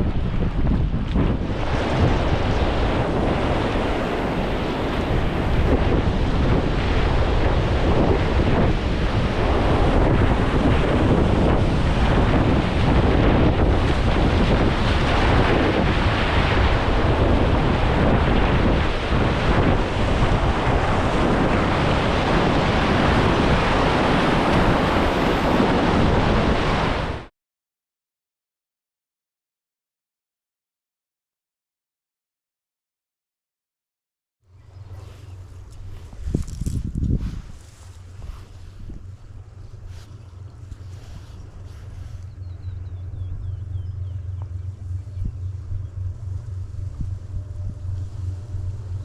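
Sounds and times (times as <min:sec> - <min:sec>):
wind buffeting the microphone: 0:00.0 - 0:27.3, 0:34.6 - 0:49.0.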